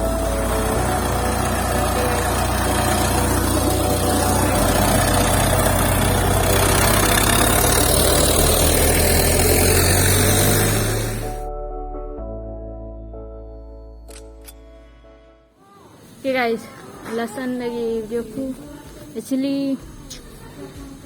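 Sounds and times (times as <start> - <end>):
vehicle engine humming: 0.0 - 11.5.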